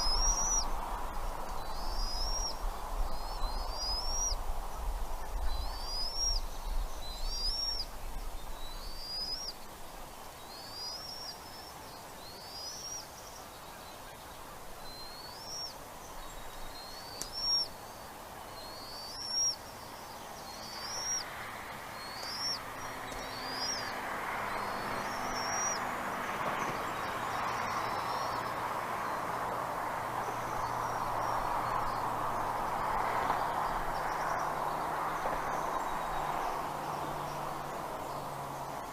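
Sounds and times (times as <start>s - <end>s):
steady rushing noise: 0.0s - 12.2s.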